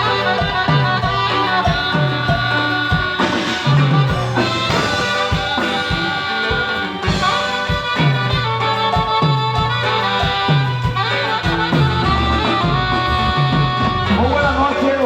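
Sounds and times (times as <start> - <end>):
live band instrumental music: 0.0 - 15.0
steady drum beat: 0.0 - 15.0.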